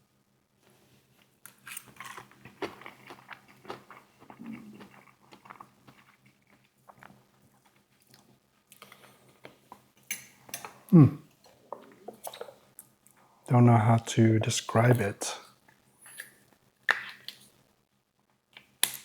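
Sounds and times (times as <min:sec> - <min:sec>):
person chewing and smacking: 0:01.8 - 0:09.9.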